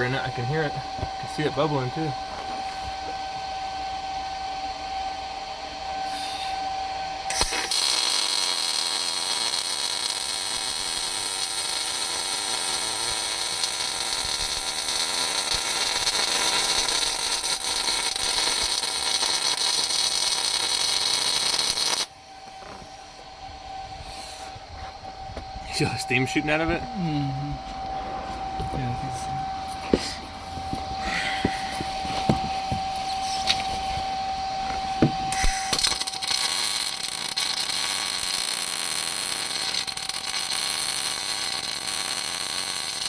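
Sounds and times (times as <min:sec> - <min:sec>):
steady hum: 0:00.0 - 0:38.3
arc welding sizzle: 0:07.3 - 0:22.7, 0:34.6 - 0:43.0.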